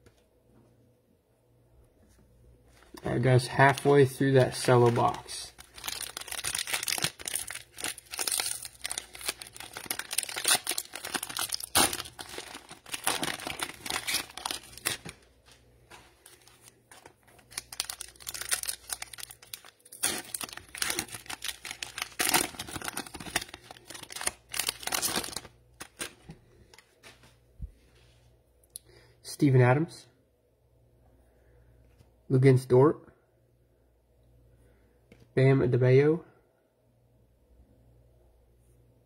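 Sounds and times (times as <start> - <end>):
cellophane wrappers crinkling and tearing: 2.9 - 26.8.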